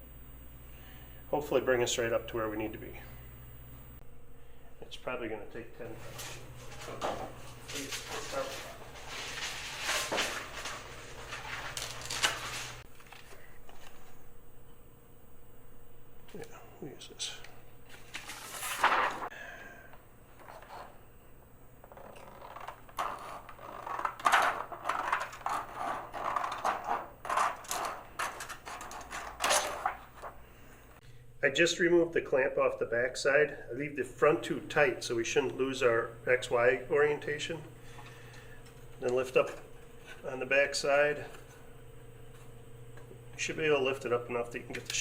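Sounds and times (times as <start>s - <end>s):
steady low hum: 0.0s - 45.0s
rustles and scrapes of handling: 5.8s - 14.3s, 17.8s - 19.3s, 20.3s - 21.0s.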